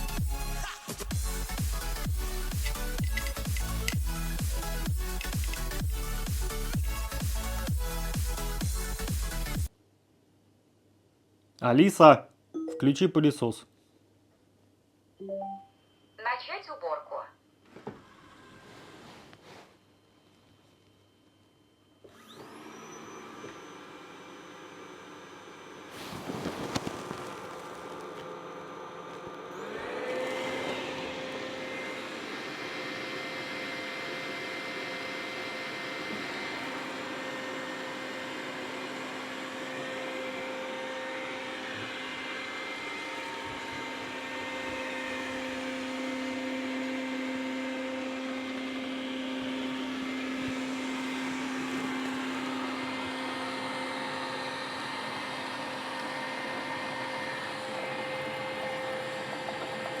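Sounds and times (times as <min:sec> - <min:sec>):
robot vacuum motor whir: 0:01.4 - 0:07.1, 0:26.2 - 1:00.0.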